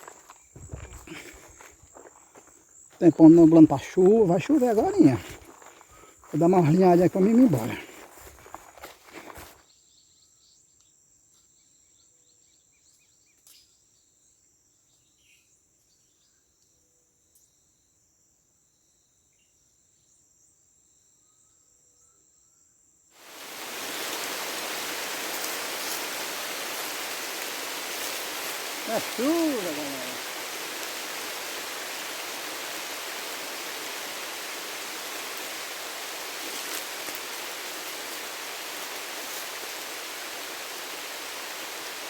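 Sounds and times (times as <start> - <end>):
insect chorus trilling: 0.0 - 9.5, 23.2 - 42.0
heavy rain: 0.6 - 1.6, 3.5 - 5.4, 6.4 - 7.8, 23.2 - 42.0.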